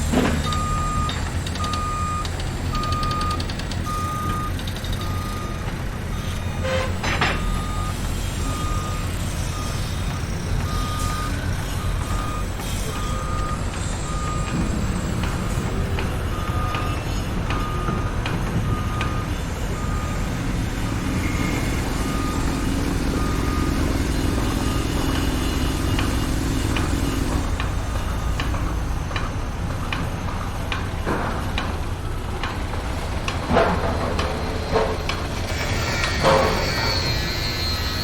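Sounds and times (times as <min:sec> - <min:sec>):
diesel engine rumble: 0:00.0 - 0:36.5
reversing alarm beeping: 0:00.4 - 0:31.0, 0:34.7 - 0:38.0.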